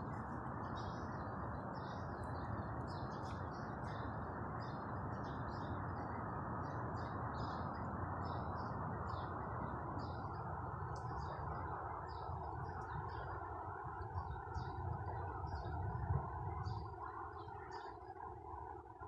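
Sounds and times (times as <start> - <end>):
birds chirping: 0.0 - 19.0
low background hum: 0.0 - 19.0.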